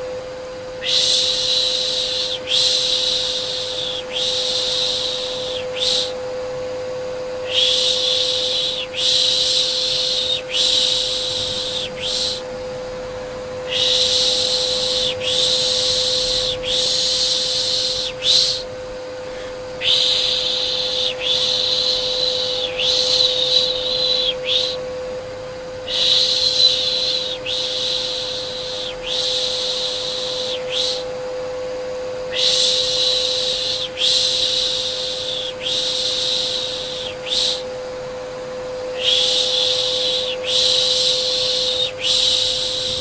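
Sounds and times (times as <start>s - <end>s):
vacuum cleaner hum: 0.0s - 43.0s
person shushing: 0.8s - 6.2s, 7.5s - 12.4s, 13.7s - 24.8s, 25.9s - 31.0s.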